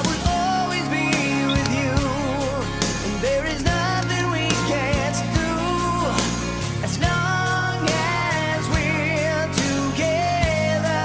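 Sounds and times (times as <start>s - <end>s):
slow pop love song: 0.0s - 11.0s.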